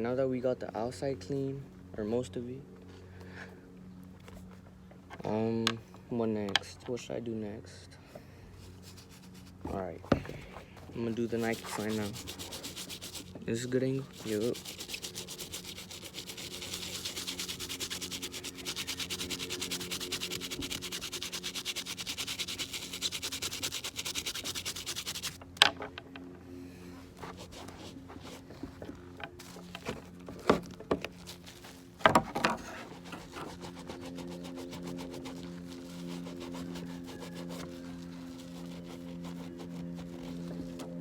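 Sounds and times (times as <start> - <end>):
scrubbing leather sneaker: 8.6 - 25.4, 27.0 - 41.0.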